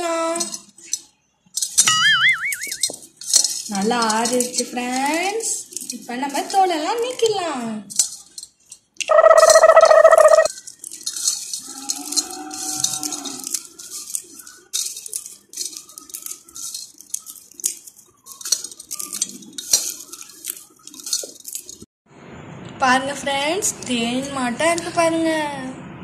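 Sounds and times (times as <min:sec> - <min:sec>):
peanuts rattling in clay pot: 0:00.0 - 0:21.9
loud steady tone: 0:09.1 - 0:10.5.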